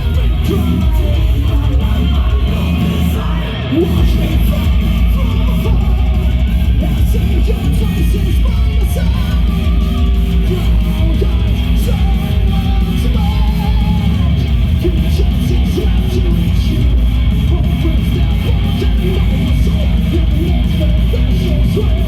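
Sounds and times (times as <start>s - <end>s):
heavy metal band playing live: 0.0s - 22.0s.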